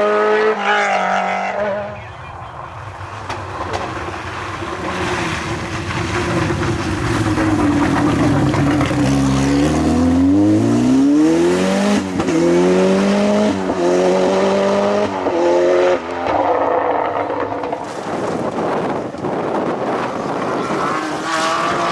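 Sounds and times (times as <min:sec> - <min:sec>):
rally car engine accelerating: 0:00.0 - 0:21.9.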